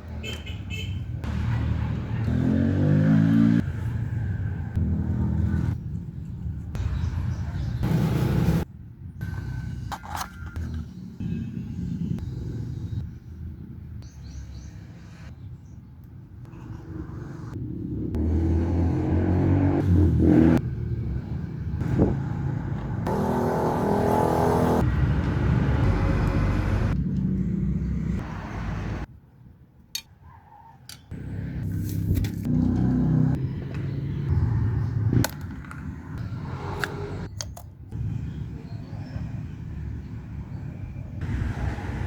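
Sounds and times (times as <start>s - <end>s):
scooter engine revving: 22.0s - 25.1s.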